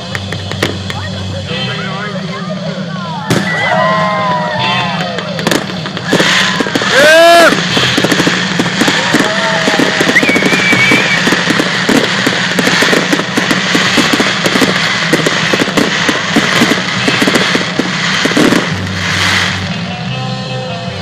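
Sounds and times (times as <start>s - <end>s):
firework whistle: 0.0s - 21.0s
fireworks bangs and crackles: 0.0s - 21.0s
hissing burst: 3.3s - 19.9s.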